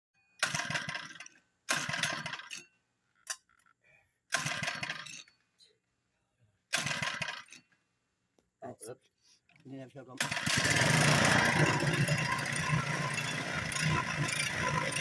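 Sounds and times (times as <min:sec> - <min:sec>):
small engine cranking: 0:00.4 - 0:02.6, 0:06.7 - 0:07.7, 0:10.2 - 0:15.0.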